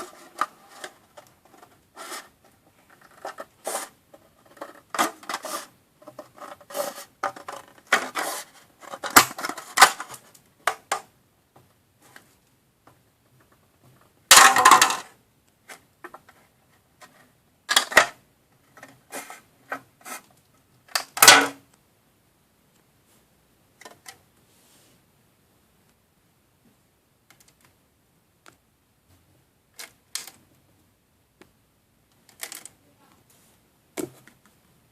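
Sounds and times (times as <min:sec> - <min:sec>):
plastic pieces clicking and tapping: 0:04.4 - 0:11.1, 0:27.3 - 0:27.8, 0:29.8 - 0:30.4, 0:32.1 - 0:32.8.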